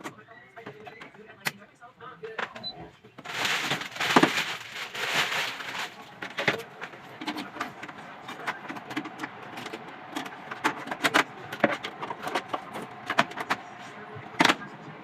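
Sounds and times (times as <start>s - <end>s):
hard objects clicking and knocking: 3.2s - 13.7s.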